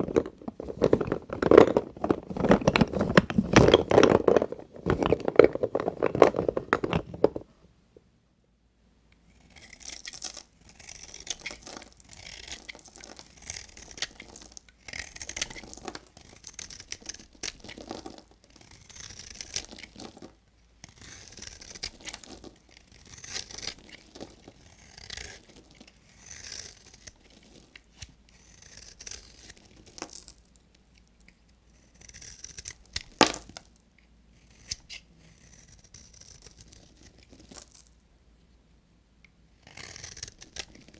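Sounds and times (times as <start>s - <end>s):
knife cutting soap: 9.2s - 30.2s, 31.0s - 33.6s, 34.3s - 37.6s, 39.6s - 40.9s.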